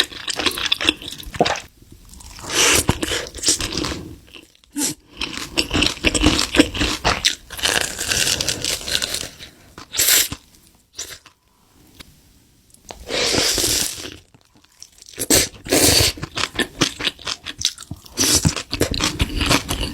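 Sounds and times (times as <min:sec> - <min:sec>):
crunchy food chewing: 0:13.6 - 0:19.9.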